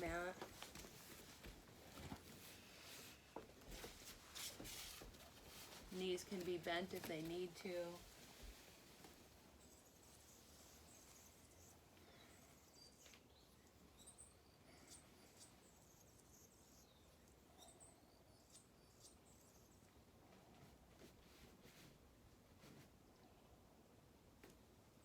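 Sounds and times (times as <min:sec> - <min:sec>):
small birds chirping: 0:09.4 - 0:20.5.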